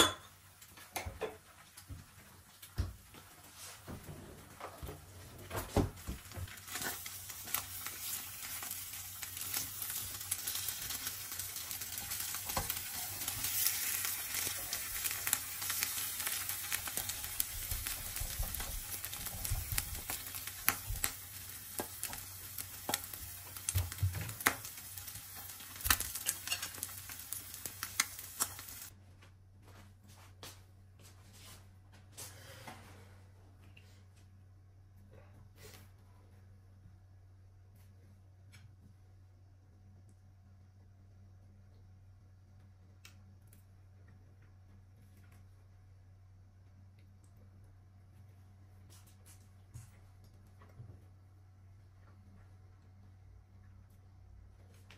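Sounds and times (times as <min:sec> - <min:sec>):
food sizzling in a pan: 0:06.0 - 0:28.9.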